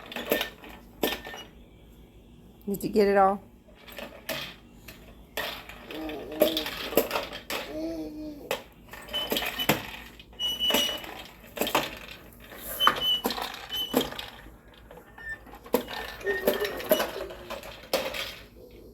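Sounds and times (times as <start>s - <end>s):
push popper toy clattering: 5.4s - 7.8s, 8.5s - 18.6s.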